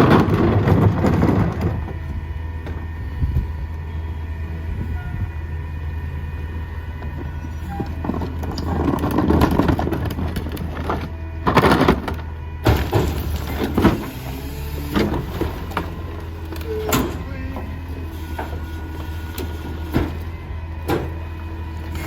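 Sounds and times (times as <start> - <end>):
garbage truck diesel engine: 0.0 - 22.0
metal clanks: 15.0 - 21.3.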